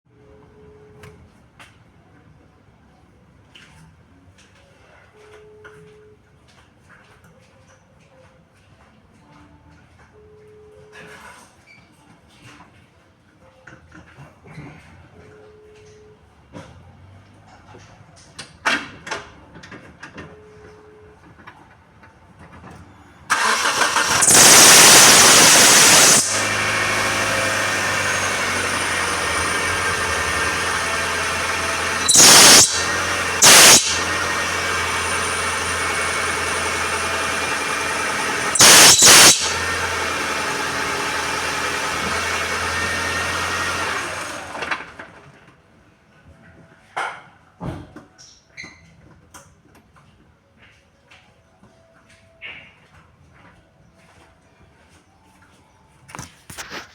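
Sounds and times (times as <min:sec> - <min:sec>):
belt squeal: 0:23.3 - 0:39.9
car engine idling: 0:23.3 - 0:41.8.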